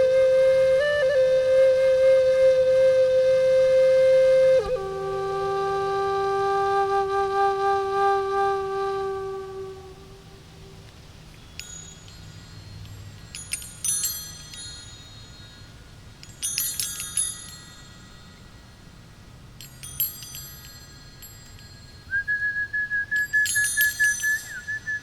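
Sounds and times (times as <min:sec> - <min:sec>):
wind chimes ringing: 0:11.3 - 0:25.0
high fluttering whistled note: 0:22.1 - 0:25.0.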